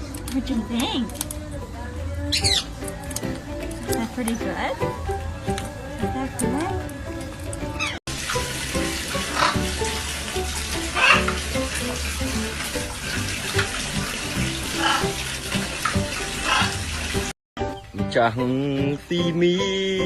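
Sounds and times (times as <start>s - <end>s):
background music: 0.0s - 20.0s
water running from a tap: 5.6s - 17.4s.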